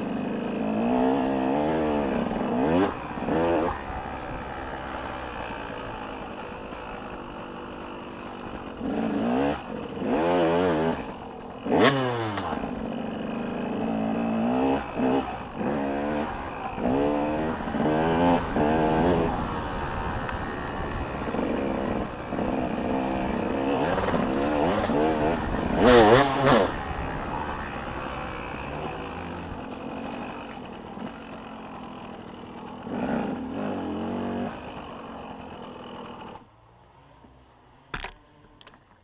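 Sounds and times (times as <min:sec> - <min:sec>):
dirt bikes revving: 0:00.0 - 0:37.0
dirt bike passing close: 0:00.0 - 0:38.5.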